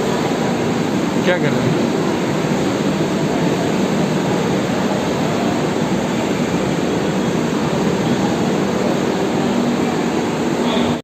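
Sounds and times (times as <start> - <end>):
moving train rushing: 0.0 - 11.0.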